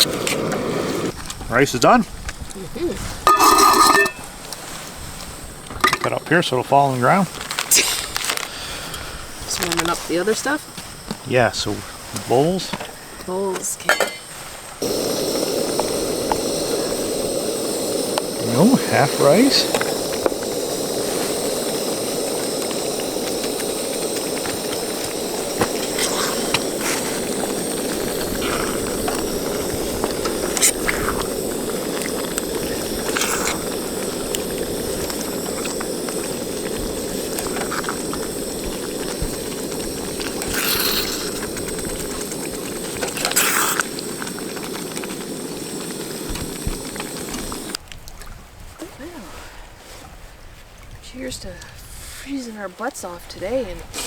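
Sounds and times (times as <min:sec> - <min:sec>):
gas stove burner hissing: 0:00.0 - 0:47.8
utensils clinking on cookware: 0:03.3 - 0:04.3, 0:13.9 - 0:14.3.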